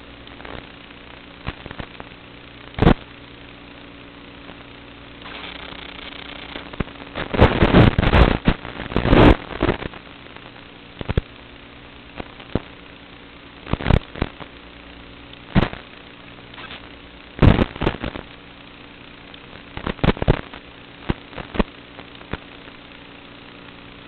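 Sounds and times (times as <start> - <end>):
loud crackling bursts: 0.0 - 24.0.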